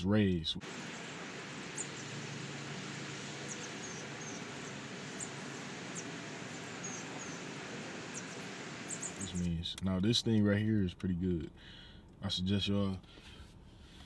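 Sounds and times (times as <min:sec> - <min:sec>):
small birds chirping: 0:00.6 - 0:09.6
background hiss: 0:00.6 - 0:10.5.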